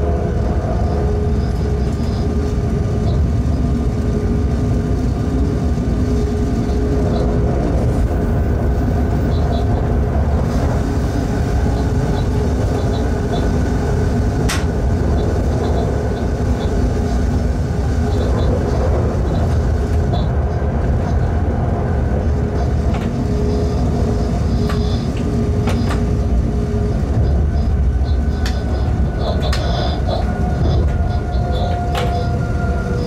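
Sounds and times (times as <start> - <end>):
locomotive wheels rolling on rails: 0.0 - 33.0
machinery hum: 0.0 - 33.0.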